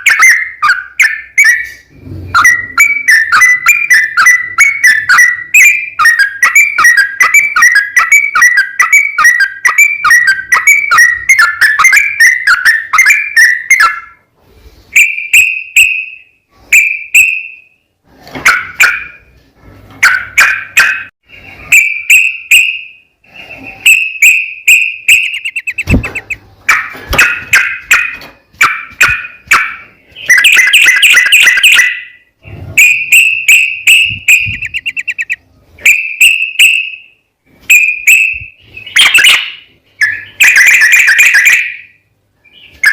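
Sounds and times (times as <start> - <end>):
bulbul singing bubbling song: 23.8 - 26.4, 32.9 - 35.4.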